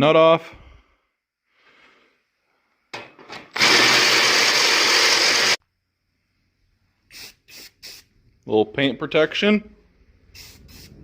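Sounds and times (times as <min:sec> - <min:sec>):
power tool cutting metal: 0:03.5 - 0:05.6.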